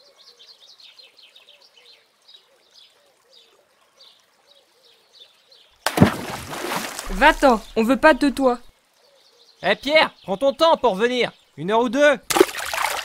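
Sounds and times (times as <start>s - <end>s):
birds chirping: 4.8s - 12.0s.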